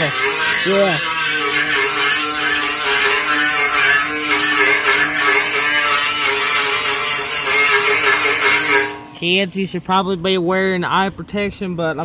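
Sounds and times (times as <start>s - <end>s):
power sander on metal: 0.0s - 9.2s.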